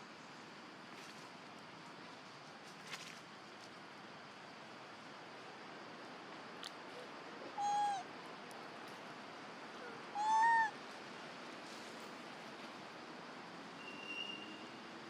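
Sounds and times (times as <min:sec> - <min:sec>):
baby monkey coo calls: 0:07.5 - 0:08.0, 0:09.8 - 0:10.8.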